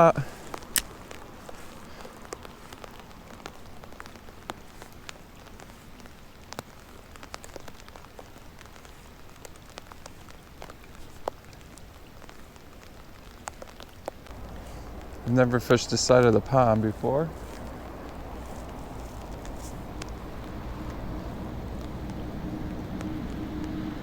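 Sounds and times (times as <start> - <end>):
rain falling: 0.0 - 24.0
raindrops ticking close by: 0.0 - 24.0.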